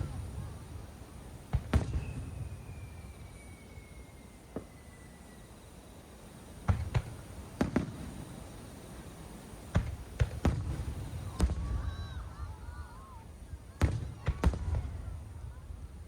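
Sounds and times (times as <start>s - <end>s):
fireworks bursting: 0.0s - 16.0s
faint descending whistle: 1.8s - 6.2s.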